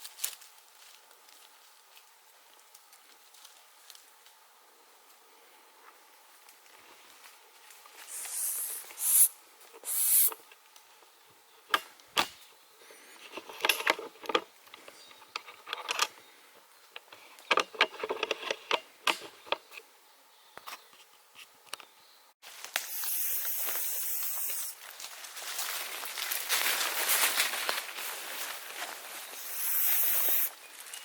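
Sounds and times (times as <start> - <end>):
twigs and leaves snapping underfoot: 0.0 - 4.4, 22.5 - 23.0, 24.8 - 29.4.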